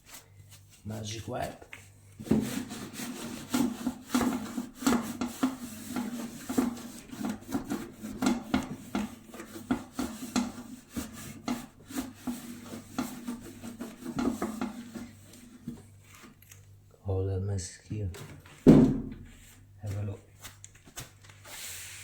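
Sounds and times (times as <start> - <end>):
cloth scrubbing a surface: 0.0 - 1.2, 2.2 - 16.2.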